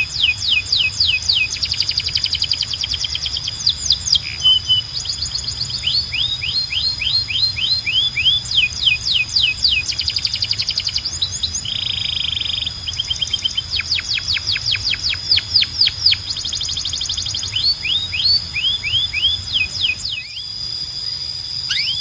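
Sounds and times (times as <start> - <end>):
canary singing: 0.0 - 22.0.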